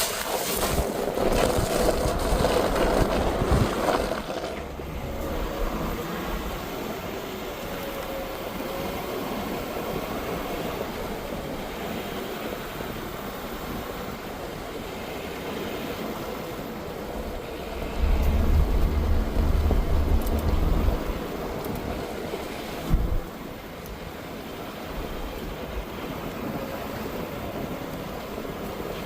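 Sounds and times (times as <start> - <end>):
road and tyre noise: 0.0 - 29.0
low rumble: 4.5 - 6.6, 17.1 - 21.9.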